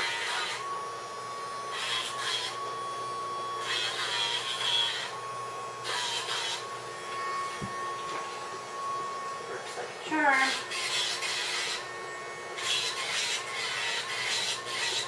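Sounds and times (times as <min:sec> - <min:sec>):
nail grinder whining: 0:00.0 - 0:15.0
gritty grinding on nails: 0:12.6 - 0:15.0.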